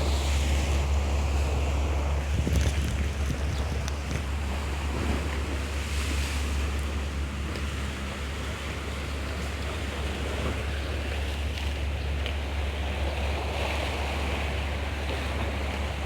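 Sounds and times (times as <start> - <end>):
wind buffeting microphone: 0.0 - 7.4
sea waves on rocky shore: 0.0 - 16.0.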